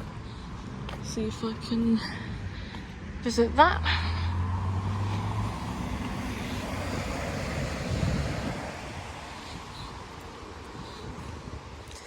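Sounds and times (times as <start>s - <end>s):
wind buffeting microphone: 4.3s - 12.0s.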